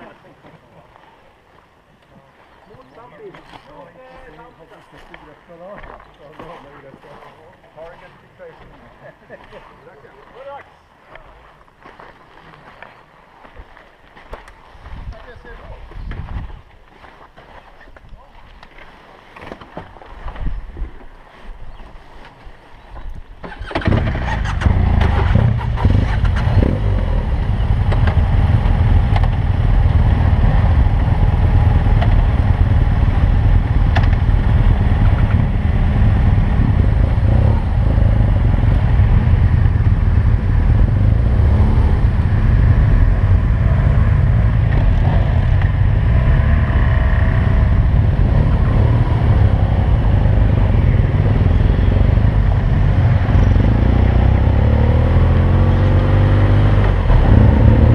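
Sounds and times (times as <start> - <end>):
motorcycle engine rumbling: 23.0 - 57.9.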